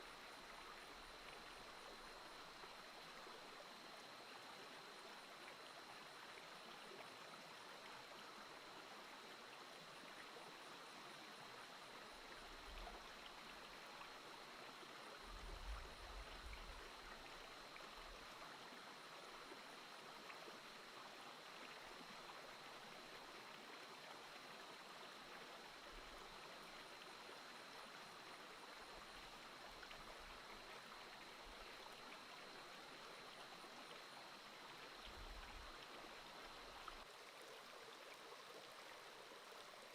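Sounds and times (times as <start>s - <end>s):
small stream running: 0.0s - 39.9s.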